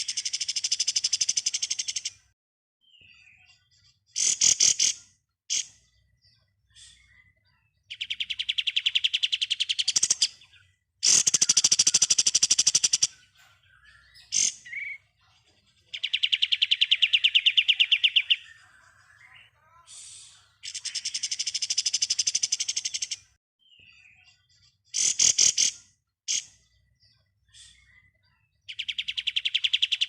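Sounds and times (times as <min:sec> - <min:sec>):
bird chirps: 0:00.0 - 0:30.0.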